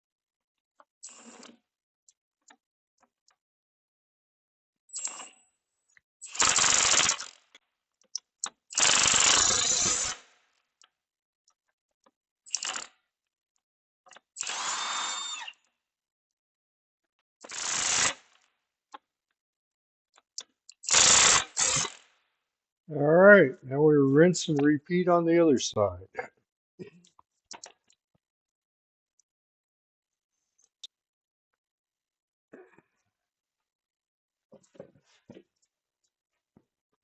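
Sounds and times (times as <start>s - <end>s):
power tool driving fasteners: 6.3s - 7.4s, 8.8s - 10.3s, 14.4s - 15.6s, 17.4s - 18.4s, 20.8s - 22.1s.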